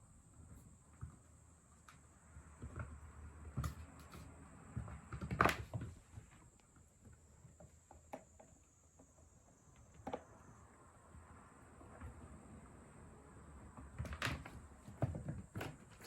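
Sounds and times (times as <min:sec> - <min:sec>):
kitten playing knocks and rustles: 0:00.4 - 0:10.5, 0:13.5 - 0:16.0.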